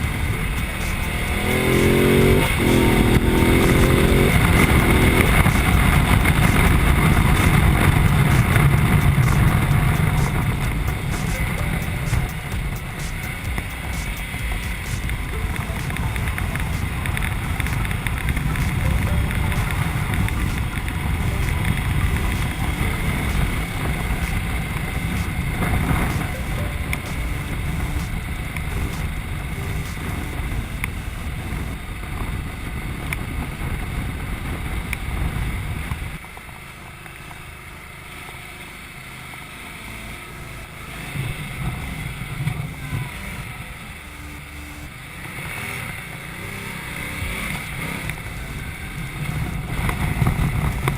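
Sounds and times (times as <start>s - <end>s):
wind rush on microphone: 0.0s - 36.2s, 48.1s - 50.9s
motorcycle engine: 0.0s - 50.9s.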